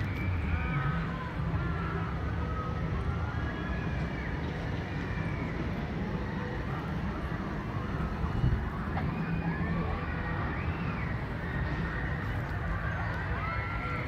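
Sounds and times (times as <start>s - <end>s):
wind buffeting microphone: 5.5s - 14.0s.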